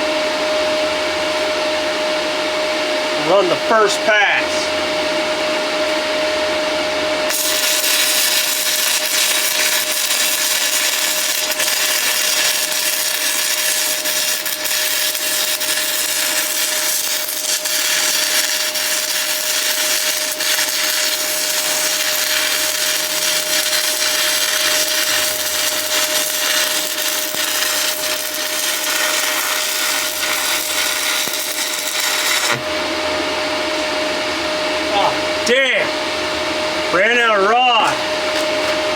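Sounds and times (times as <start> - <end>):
welding arc crackling: 7.3 - 32.8.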